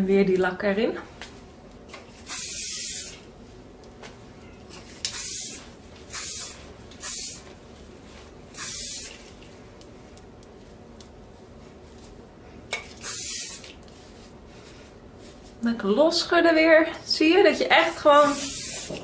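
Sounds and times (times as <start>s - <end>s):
aerosol spray hissing: 2.2s - 3.2s, 5.1s - 7.4s, 8.5s - 9.2s, 13.0s - 13.7s, 18.2s - 19.0s.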